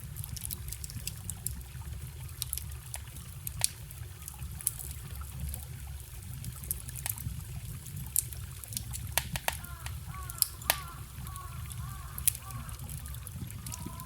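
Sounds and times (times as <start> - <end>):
campfire crackling and popping: 0.0 - 14.0
forest stream rushing: 8.5 - 14.0.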